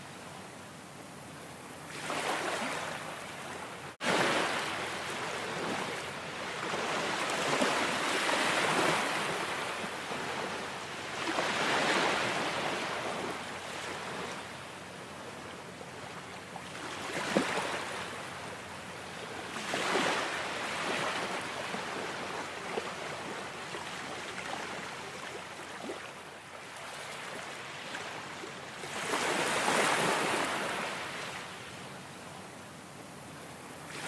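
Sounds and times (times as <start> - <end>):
ocean waves breaking: 1.9 - 14.5, 19.3 - 26.1, 28.8 - 31.5.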